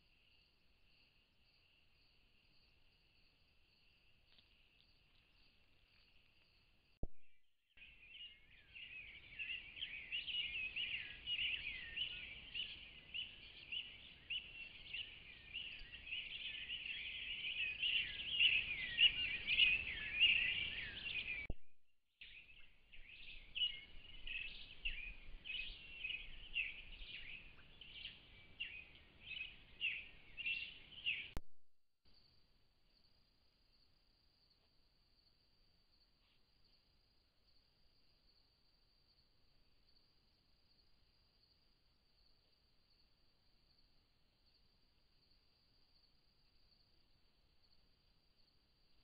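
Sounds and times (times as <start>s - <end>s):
birds chirping chorus: 7.8s - 21.5s, 22.2s - 31.4s.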